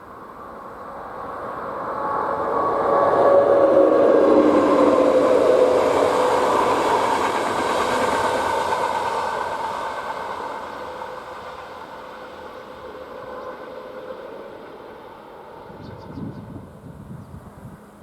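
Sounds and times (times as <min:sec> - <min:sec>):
faint train whine: 0:00.0 - 0:18.0
train running past: 0:00.0 - 0:18.0.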